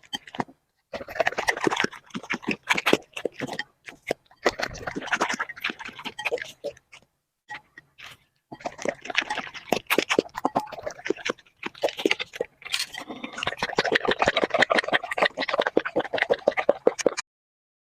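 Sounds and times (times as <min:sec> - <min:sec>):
puppy chewing and crunching food: 0:00.0 - 0:17.2.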